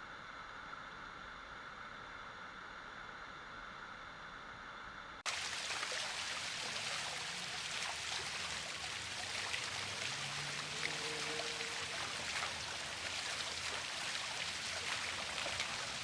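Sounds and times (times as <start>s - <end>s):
steady hiss: 0.0s - 16.0s
waterfall rushing and splashing: 5.3s - 16.0s.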